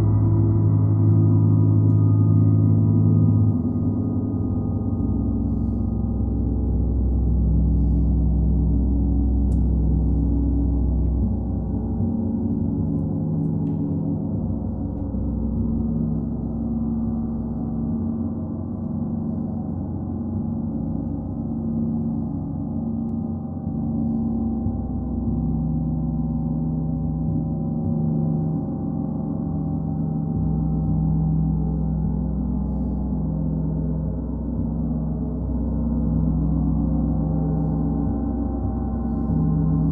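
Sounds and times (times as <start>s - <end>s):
sustained gong tones: 0.0s - 8.0s.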